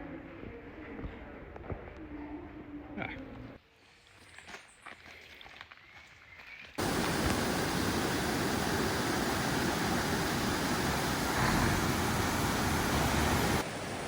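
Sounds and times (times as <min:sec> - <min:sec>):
waterfall roaring: 0:06.8 - 0:14.0.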